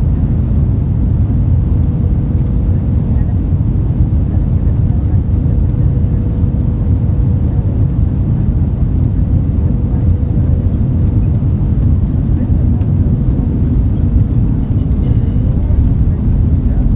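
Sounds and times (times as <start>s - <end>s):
aircraft cabin engine rumble: 0.0s - 16.9s
faint steady hum: 7.4s - 16.9s.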